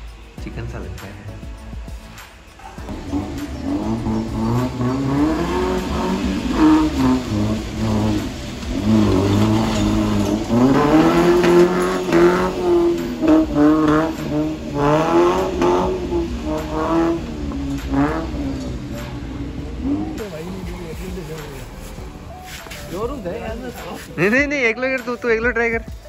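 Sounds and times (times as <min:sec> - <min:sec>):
car engine revving hard: 0:02.6 - 0:22.4.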